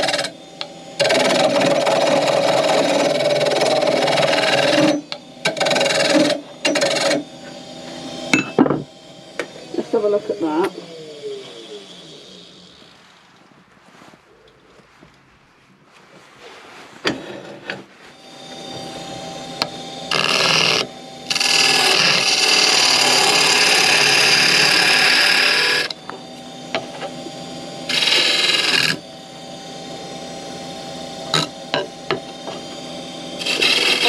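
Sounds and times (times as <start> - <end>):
wood lathe running: 0.0 - 13.3, 17.1 - 34.0
turning tool cutting wood: 0.0 - 13.5, 17.0 - 34.0.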